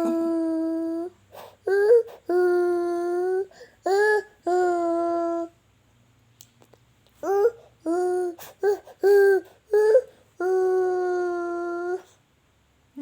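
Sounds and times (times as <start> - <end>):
toddler making vocal sounds: 0.0 - 5.6, 7.2 - 12.1.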